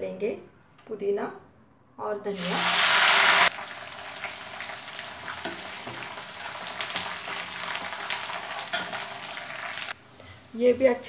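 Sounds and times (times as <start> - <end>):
leaves sizzling in hot oil: 2.3 - 11.0.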